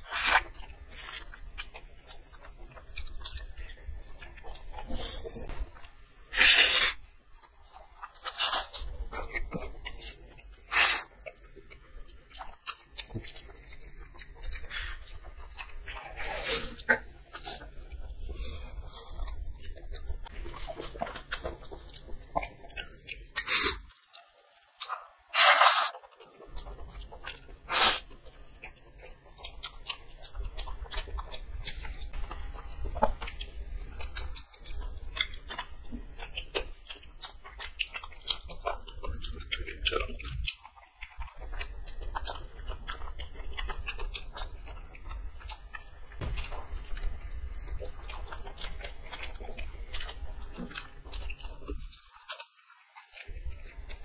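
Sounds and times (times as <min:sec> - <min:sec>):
people chewing food: 0:00.0 - 0:54.0
sharp noises: 0:24.8 - 0:26.0.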